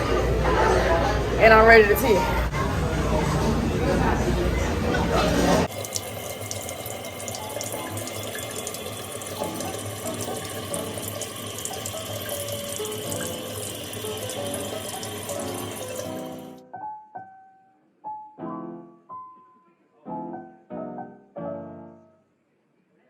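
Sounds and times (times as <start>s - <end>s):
running water rushing: 4.4s - 16.6s.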